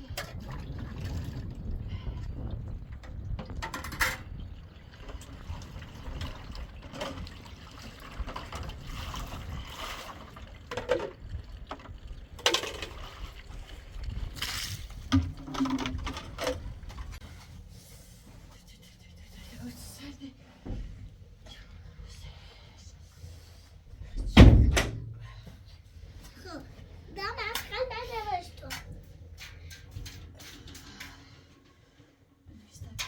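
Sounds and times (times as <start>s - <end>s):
liquid trickling: 4.2s - 16.8s.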